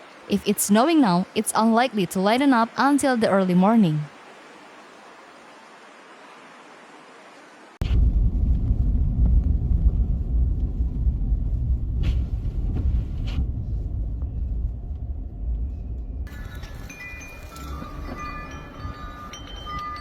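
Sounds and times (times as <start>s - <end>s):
blizzard wind buffeting microphone: 7.8s - 20.0s.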